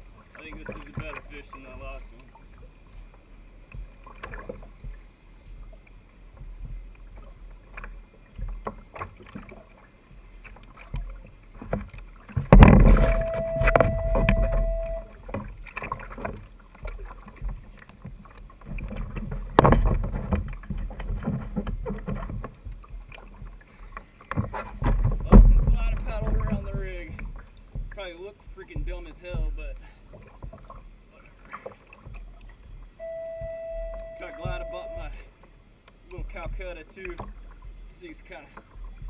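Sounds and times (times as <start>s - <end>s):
water sloshing against kayak hull: 0.0s - 39.0s
knocks on boat: 10.9s - 15.5s, 16.2s - 23.6s, 24.3s - 30.8s, 33.3s - 35.2s
steady tone: 12.7s - 15.2s, 33.0s - 35.3s.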